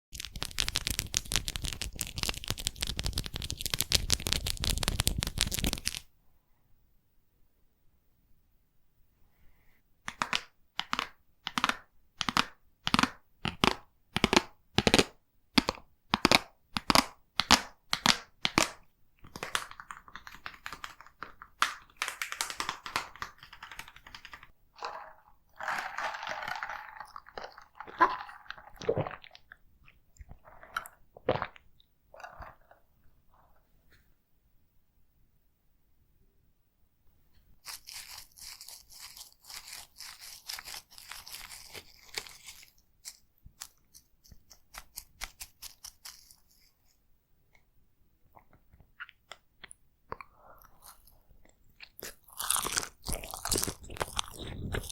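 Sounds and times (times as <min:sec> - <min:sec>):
soft mouth sounds: 0:48.3 - 0:54.9
close chewing: 0:50.8 - 0:54.9.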